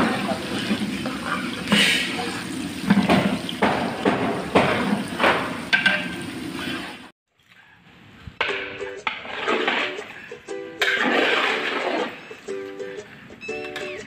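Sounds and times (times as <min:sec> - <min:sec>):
ladle clanking and scraping pot: 0:02.8 - 0:06.2, 0:08.5 - 0:10.2, 0:10.8 - 0:12.3.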